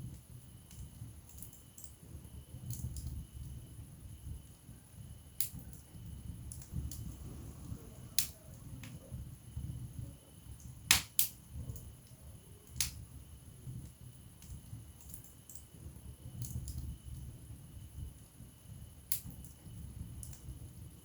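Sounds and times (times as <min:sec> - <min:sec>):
wood fire crackling and popping: 0:02.6 - 0:03.6, 0:05.4 - 0:17.4, 0:19.0 - 0:20.8.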